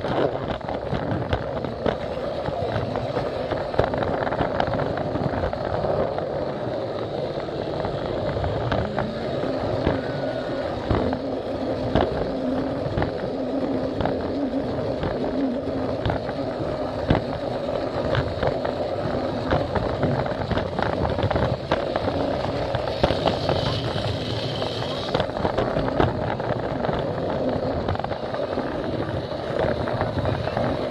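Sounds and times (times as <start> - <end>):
toy train motor running: 0.0 - 30.9
wheels clicking over track joints: 0.0 - 30.9.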